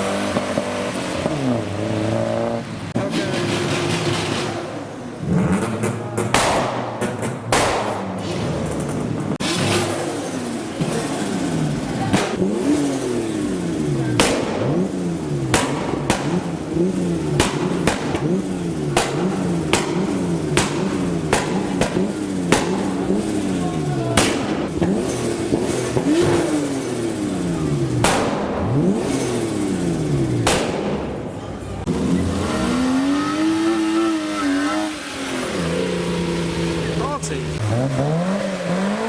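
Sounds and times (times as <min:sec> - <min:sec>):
car engine revving hard: 0:00.0 - 0:39.0
sharp cracks: 0:05.5 - 0:09.9, 0:14.1 - 0:23.6, 0:24.2 - 0:27.3, 0:28.0 - 0:29.7, 0:30.3 - 0:31.5.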